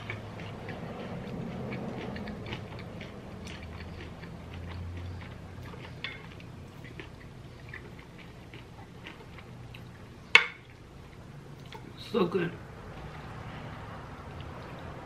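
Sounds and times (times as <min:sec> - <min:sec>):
chewing food with mouth closed: 0:00.0 - 0:12.0.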